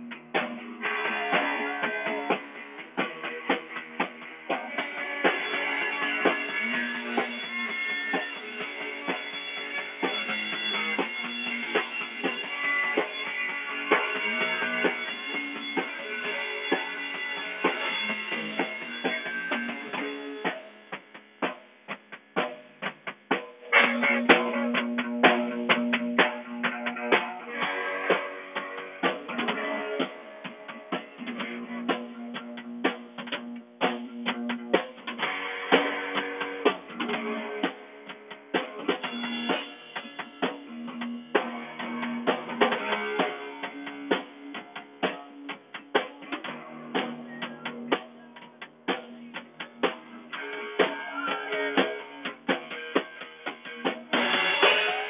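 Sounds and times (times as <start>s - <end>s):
steady drum beat: 0.0s - 55.0s
sustained guitar notes: 23.7s - 37.3s.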